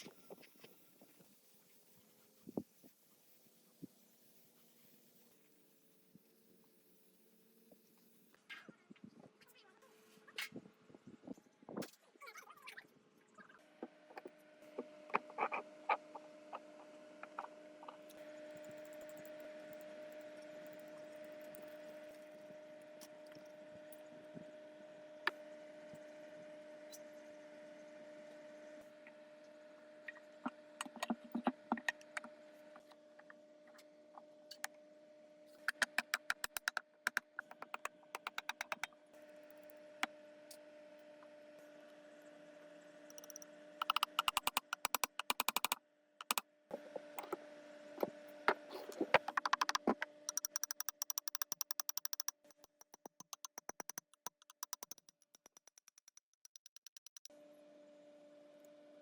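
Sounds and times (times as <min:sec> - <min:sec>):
rapid mechanical clicking: 0:18.0 - 0:21.8, 0:35.6 - 0:39.8, 0:43.1 - 0:46.4, 0:49.0 - 0:57.3.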